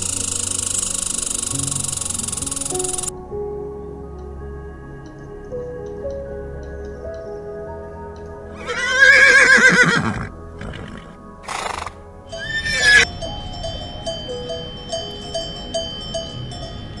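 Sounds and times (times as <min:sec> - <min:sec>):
background music: 0:00.0 - 0:17.0
horse whinnying: 0:08.6 - 0:13.0
horse snorting: 0:09.8 - 0:13.0.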